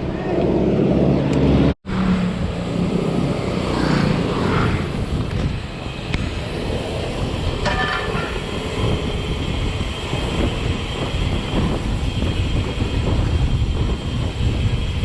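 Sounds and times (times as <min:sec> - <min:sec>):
wind buffeting microphone: 0:02.0 - 0:15.0
mountain bike rattling: 0:02.9 - 0:05.2.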